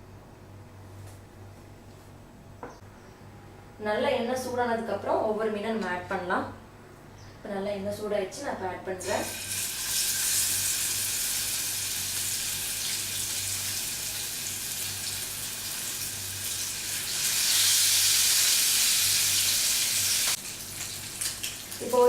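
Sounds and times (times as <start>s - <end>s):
fish sizzling in hot oil: 9.1s - 22.0s.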